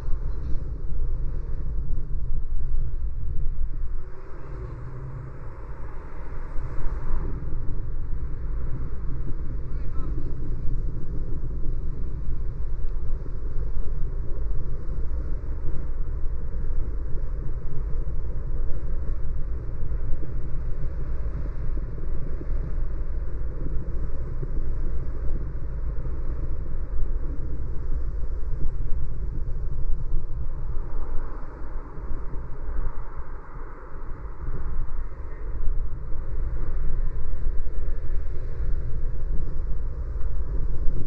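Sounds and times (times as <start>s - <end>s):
car driving rumble: 0.0s - 17.5s
road and tyre noise: 0.0s - 41.0s.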